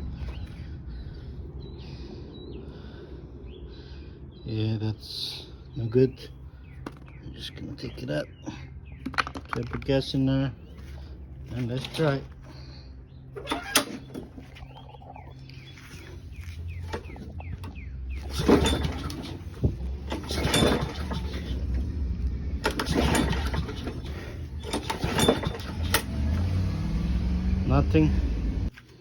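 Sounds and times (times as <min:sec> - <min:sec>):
birds chirping: 0:00.0 - 0:29.0
lawn mower pull starter: 0:11.5 - 0:12.4, 0:13.4 - 0:14.6, 0:18.2 - 0:22.0, 0:22.6 - 0:27.1.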